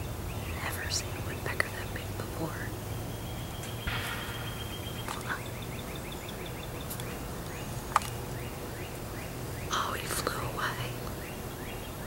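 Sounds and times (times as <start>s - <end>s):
steady low hum: 0.0s - 11.7s
small birds singing: 0.0s - 12.0s
sharp tap: 3.9s - 5.5s.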